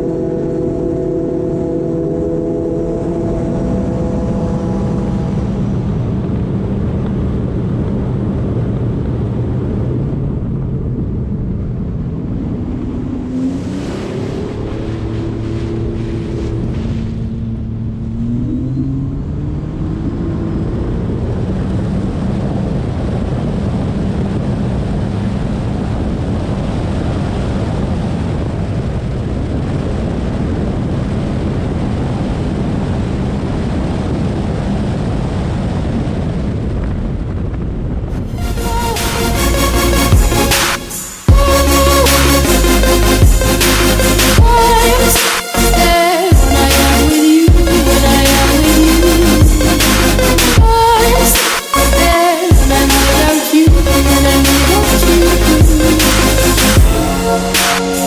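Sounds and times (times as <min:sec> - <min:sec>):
jet ski engine: 0:00.0 - 0:35.8, 0:38.2 - 0:58.0
wind on microphone: 0:00.0 - 0:58.0
water rushing: 0:12.3 - 0:19.9, 0:38.1 - 0:58.0.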